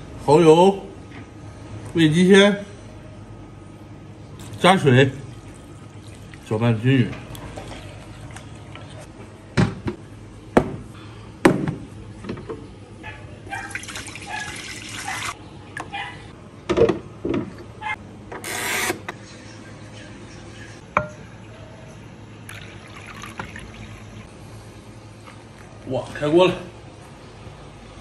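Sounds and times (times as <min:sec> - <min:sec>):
liquid pouring: 0:04.4 - 0:06.6, 0:22.5 - 0:24.2.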